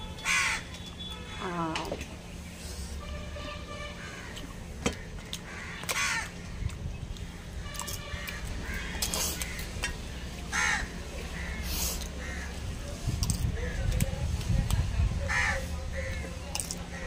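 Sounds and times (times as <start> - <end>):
crows cawing: 0.2 - 0.7, 4.0 - 6.6, 8.2 - 9.7, 10.5 - 12.6, 15.3 - 16.2.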